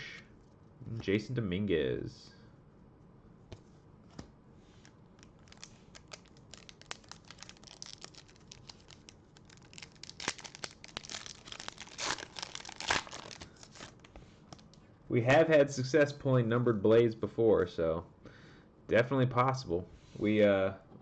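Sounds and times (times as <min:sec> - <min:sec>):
wrapper crinkling and tearing: 0:04.8 - 0:14.8.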